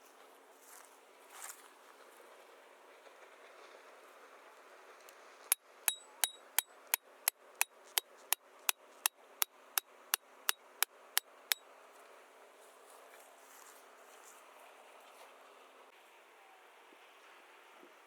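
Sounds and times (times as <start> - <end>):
hammer striking metal: 5.9 - 6.7.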